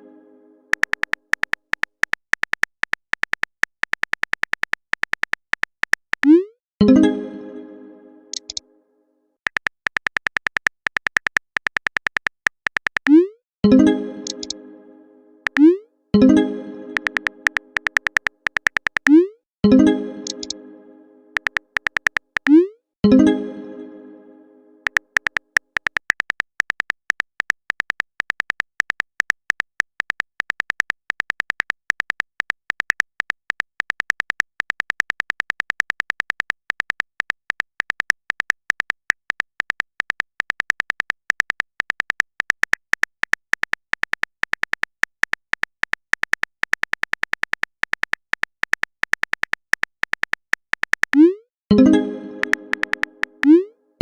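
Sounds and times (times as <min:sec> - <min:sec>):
phone keyboard typing clicks: 0:00.7 - 0:06.5, 0:08.3 - 0:08.6, 0:09.5 - 0:13.3, 0:14.2 - 0:14.6, 0:15.4 - 0:15.8, 0:16.9 - 0:19.3, 0:20.2 - 0:20.6, 0:21.4 - 0:22.7, 0:24.8 - 0:53.7
short rising chime: 0:51.7 - 0:53.4.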